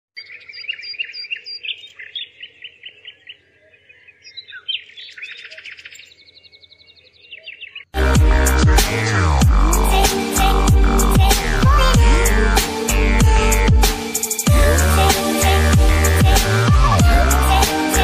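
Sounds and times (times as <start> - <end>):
small birds chirping: 0.2 - 8.0
loud electronic music: 8.0 - 18.0.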